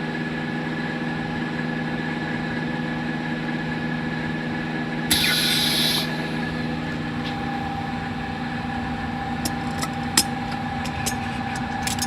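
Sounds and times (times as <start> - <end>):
steady tone: 5.1 - 12.0
workshop machine humming: 5.1 - 12.0
small clicks and taps: 9.4 - 12.0.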